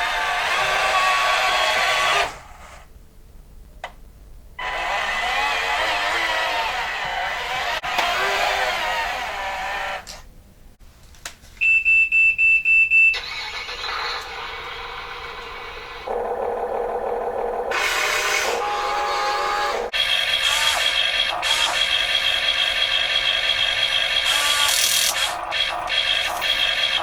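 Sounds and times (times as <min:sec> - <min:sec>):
electric motors whining: 0:04.6 - 0:10.2, 0:13.2 - 0:27.0.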